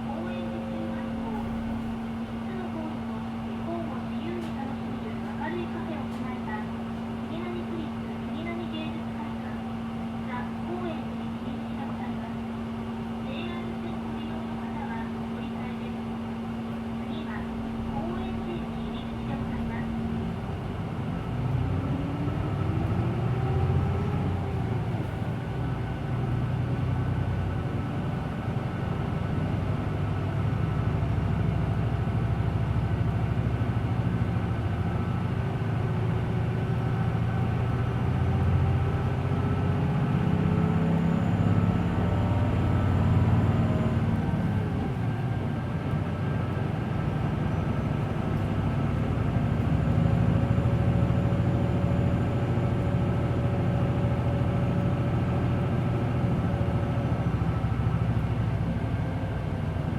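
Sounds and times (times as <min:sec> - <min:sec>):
bus diesel engine pulling: 0:00.0 - 0:59.9.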